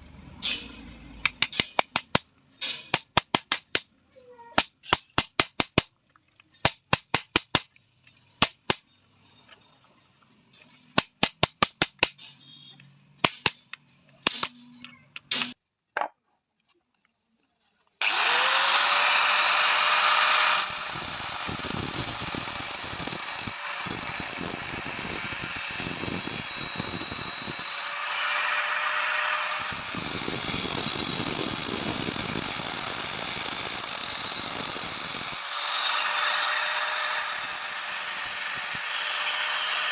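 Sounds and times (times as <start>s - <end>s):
power tool whining: 18.0s - 39.9s.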